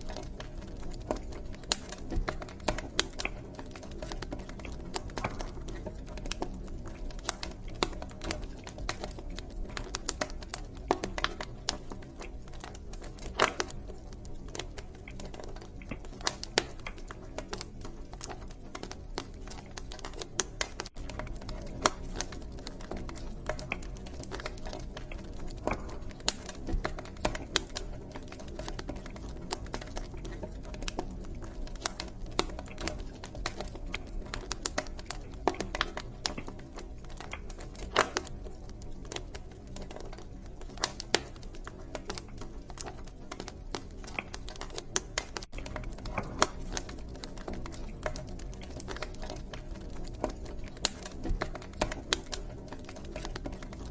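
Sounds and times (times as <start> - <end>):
low rumble of flames: 0.0 - 53.9
wood fire crackling and popping: 0.0 - 53.9.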